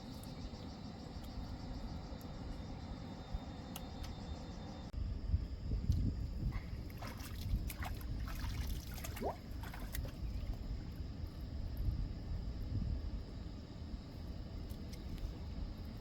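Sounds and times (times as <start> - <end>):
light water splashes: 5.9 - 11.0
water sloshing and trickling: 5.9 - 11.9.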